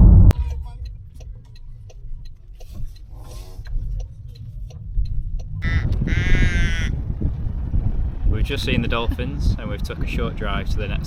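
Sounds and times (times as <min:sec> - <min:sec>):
car driving on road: 0:00.0 - 0:11.0.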